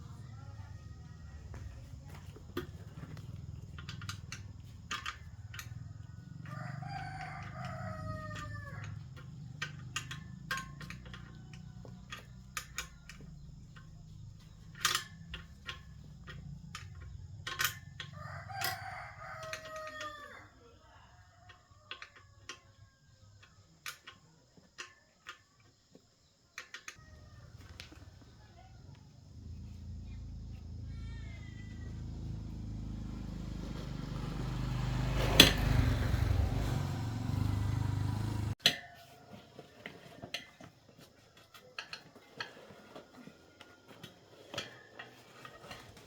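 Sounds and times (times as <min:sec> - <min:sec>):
rooster crowing: 0:06.1 - 0:09.1, 0:18.0 - 0:22.7, 0:30.7 - 0:39.6.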